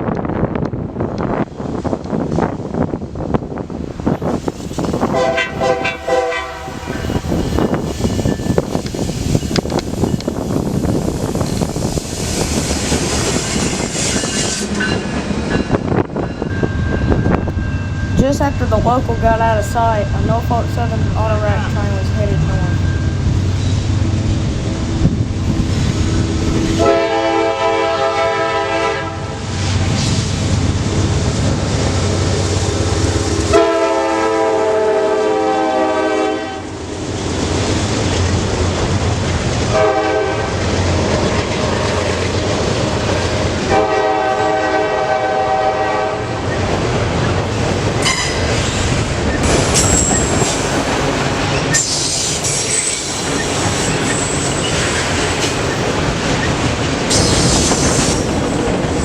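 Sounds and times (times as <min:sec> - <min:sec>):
train rumbling past: 0:00.0 - 0:59.0
locomotive horn blasts: 0:05.1 - 0:07.1, 0:26.8 - 0:29.4, 0:33.5 - 0:36.7, 0:39.7 - 0:40.6, 0:43.7 - 0:46.3
high wheel squeal: 0:48.0 - 0:58.4.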